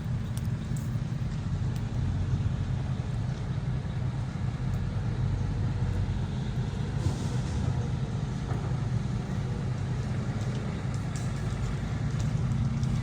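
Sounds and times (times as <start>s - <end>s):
diesel truck engine drone: 0.0s - 13.0s.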